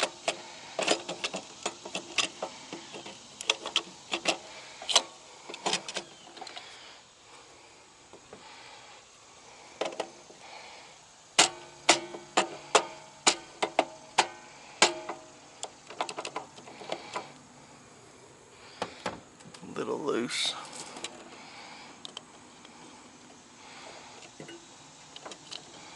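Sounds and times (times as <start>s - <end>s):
metallic clicks of hand tools: 0.0s - 6.7s.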